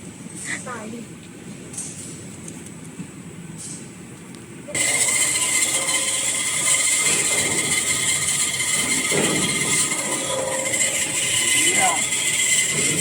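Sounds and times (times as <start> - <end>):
machine running with high whine: 4.7 - 13.0.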